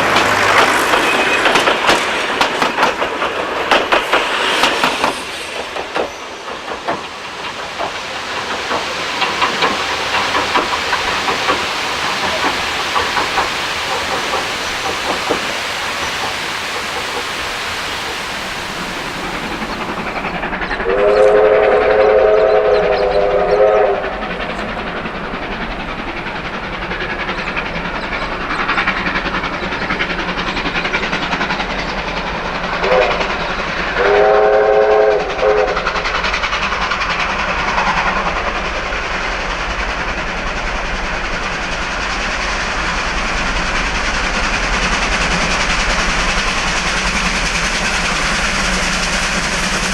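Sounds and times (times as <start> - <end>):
steam locomotive running: 0.0 - 49.9
steam whistle blasts: 20.8 - 24.2, 32.8 - 33.2, 34.0 - 35.9.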